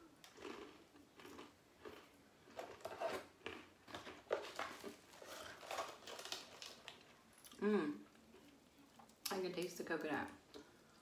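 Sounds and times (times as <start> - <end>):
person chewing crunchy granola: 0.1 - 7.6.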